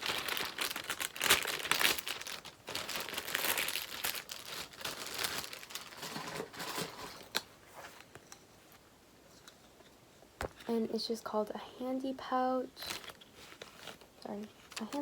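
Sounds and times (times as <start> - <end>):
packaging crinkling: 0.0 - 7.5, 12.8 - 15.0.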